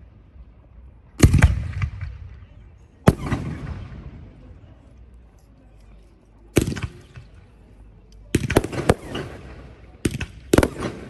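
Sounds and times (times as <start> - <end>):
low rumbling echo: 0.0 - 5.0
fireworks bursting: 8.4 - 11.0.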